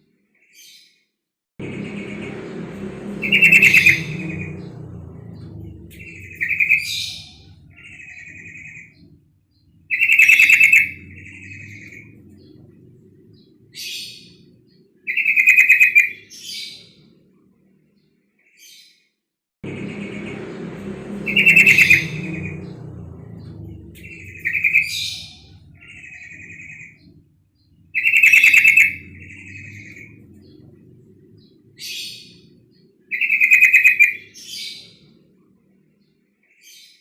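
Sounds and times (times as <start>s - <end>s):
low background rumble: 1.6s - 15.2s, 19.6s - 33.2s.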